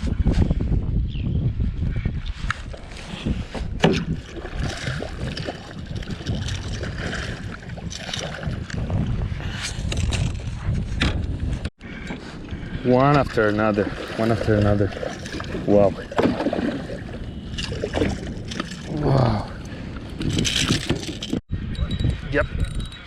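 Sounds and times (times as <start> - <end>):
wind rumble on microphone: 0.0 - 23.0
water splashing and sloshing: 2.7 - 9.2, 12.1 - 21.4.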